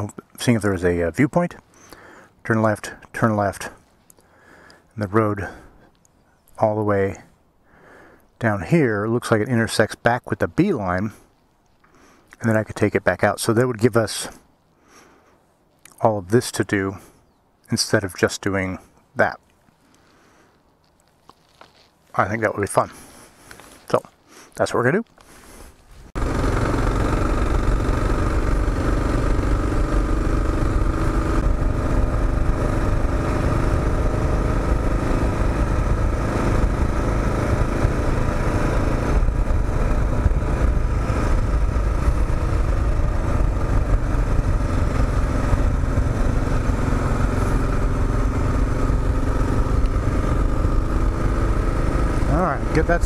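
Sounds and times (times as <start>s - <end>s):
motorcycle engine running: 26.2s - 53.0s.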